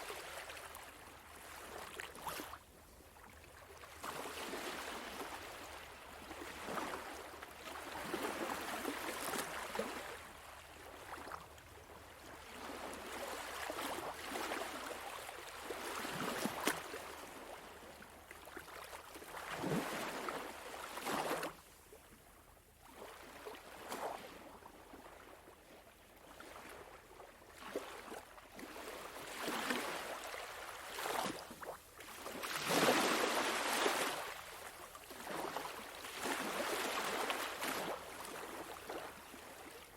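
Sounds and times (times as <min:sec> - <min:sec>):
small waves washing onto sand: 0:27.6 - 0:39.9.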